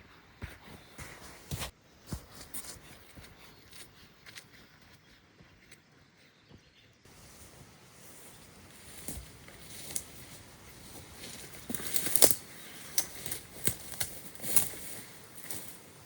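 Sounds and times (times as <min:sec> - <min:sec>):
dry leaves and twigs crunching: 0:07.1 - 0:16.0.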